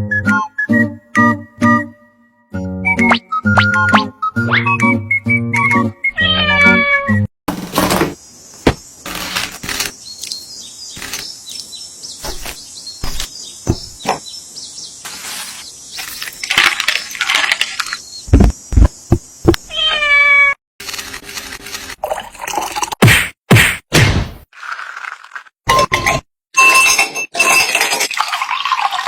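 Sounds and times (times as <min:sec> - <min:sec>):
cat meowing: 0:06.2 - 0:07.2, 0:19.7 - 0:20.6.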